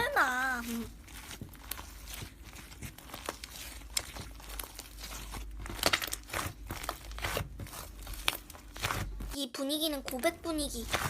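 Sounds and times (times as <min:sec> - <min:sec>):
slime squished crackling pops: 0:00.6 - 0:09.1.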